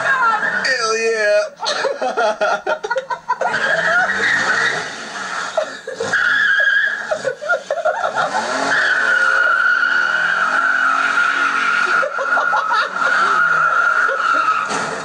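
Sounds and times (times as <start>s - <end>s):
tyres squealing on pavement: 0.0s - 1.1s, 3.4s - 15.0s
car engine revving: 3.4s - 15.0s.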